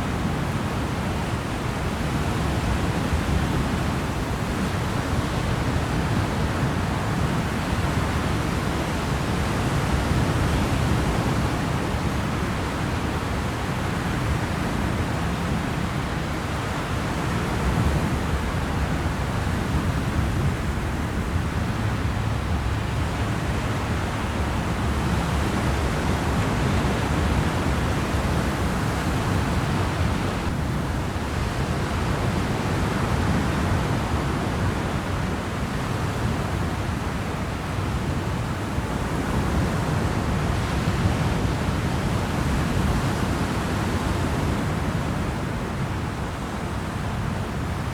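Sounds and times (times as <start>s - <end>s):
low engine rumble: 20.5s - 27.4s.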